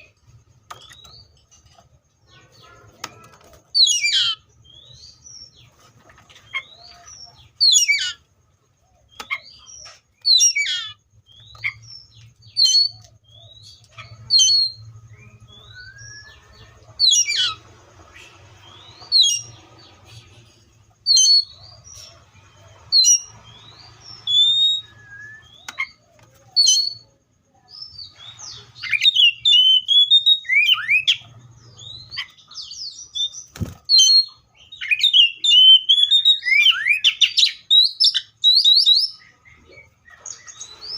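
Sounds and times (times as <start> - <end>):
bird singing whistled phrases: 14.3 - 16.4, 24.2 - 26.0, 28.8 - 31.2, 33.2 - 39.2.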